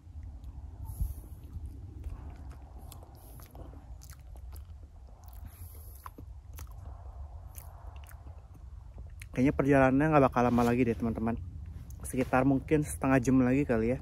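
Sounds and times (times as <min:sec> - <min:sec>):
low steady rumble: 0:00.0 - 0:14.0
person chewing banana: 0:00.1 - 0:09.3
soft mouth clicks: 0:00.2 - 0:09.3.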